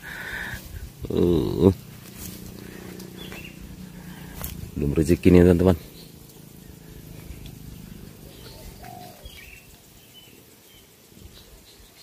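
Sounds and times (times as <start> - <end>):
low bird cooing: 0.0 - 4.7, 5.8 - 10.1.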